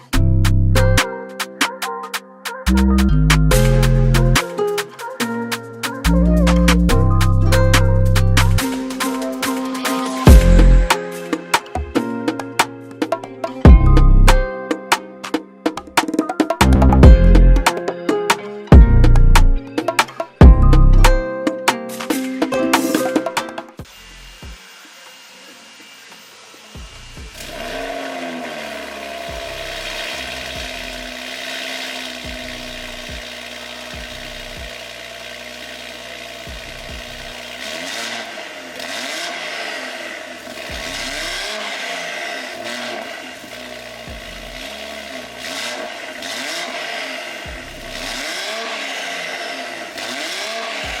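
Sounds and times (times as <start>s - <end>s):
car engine revving: 6.1s - 11.8s, 26.7s - 51.0s.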